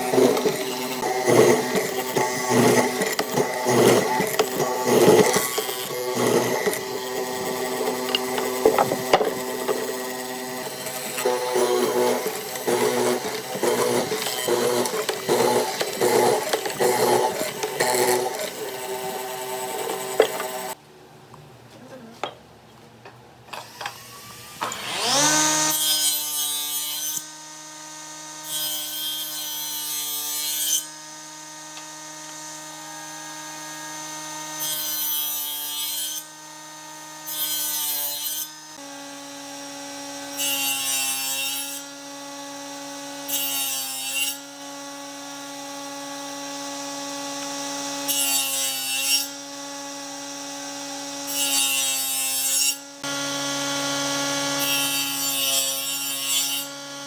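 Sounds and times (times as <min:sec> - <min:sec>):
power tool motor running: 0:00.0 - 0:20.8, 0:23.6 - 0:26.4, 0:36.3 - 0:57.0.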